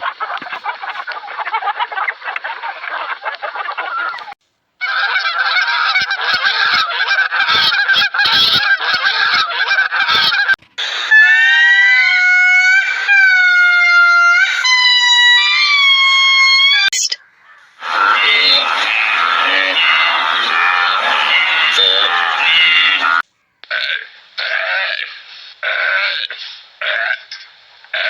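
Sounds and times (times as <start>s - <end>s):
flock of fowl chattering: 0.0s - 14.9s, 16.8s - 24.0s
goose honking: 0.0s - 15.2s, 17.4s - 24.0s.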